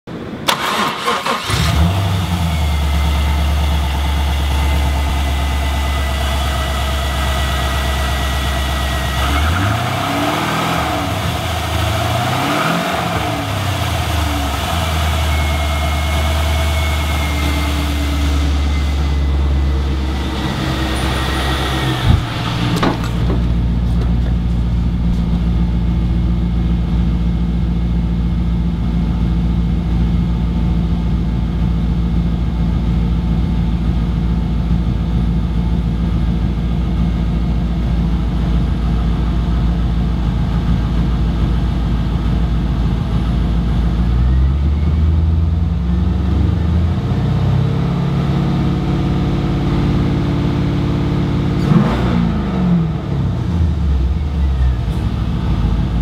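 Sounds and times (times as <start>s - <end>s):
car engine starting and idling: 0.1s - 56.0s
engine revving: 0.5s - 26.3s, 44.9s - 56.0s.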